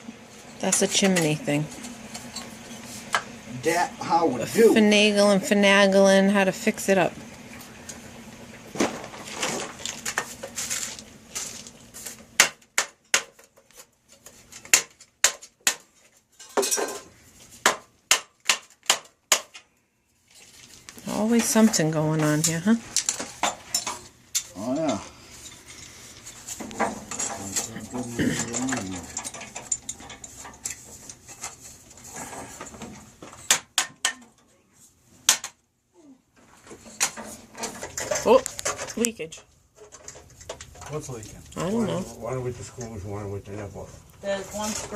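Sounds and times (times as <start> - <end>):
metal tools clanking: 16.4 - 17.1, 21.2 - 31.6.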